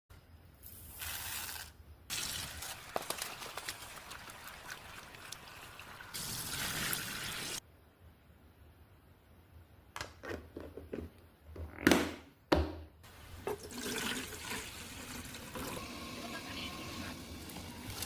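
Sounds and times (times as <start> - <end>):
water pouring into a pot: 1.0 - 7.6, 13.5 - 18.0.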